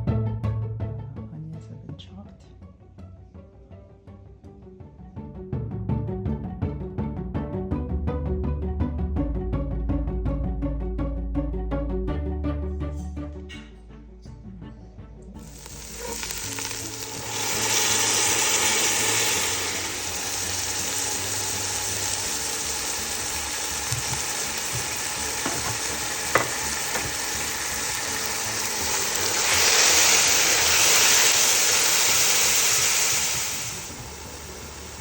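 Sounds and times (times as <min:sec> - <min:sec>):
food sizzling in hot oil: 0:15.4 - 0:35.0.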